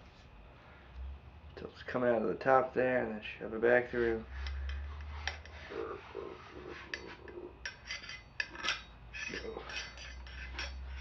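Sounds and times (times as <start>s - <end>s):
rag scraping through metal tube: 4.0s - 11.0s
metallic clinks and knocks: 7.0s - 11.0s.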